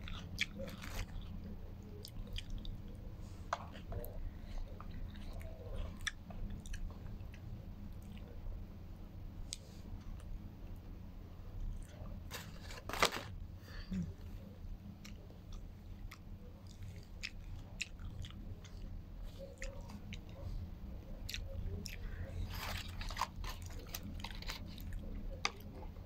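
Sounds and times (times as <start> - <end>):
person chewing with crunches: 0.0 - 2.9, 11.6 - 13.4, 15.0 - 20.4, 21.2 - 26.0.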